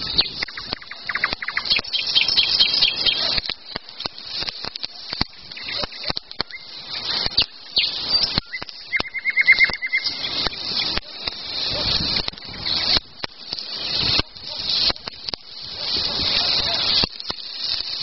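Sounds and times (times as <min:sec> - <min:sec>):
birds singing: 0:00.0 - 0:03.4, 0:05.4 - 0:11.6, 0:12.4 - 0:13.0
campfire crackling: 0:00.0 - 0:18.0
bird trill: 0:00.1 - 0:03.4, 0:05.5 - 0:11.0.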